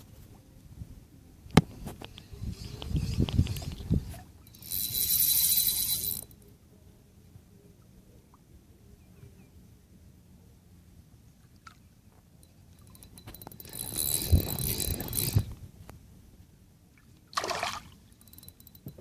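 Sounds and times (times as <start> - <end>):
water splashing beside a boat: 16.9 - 18.1.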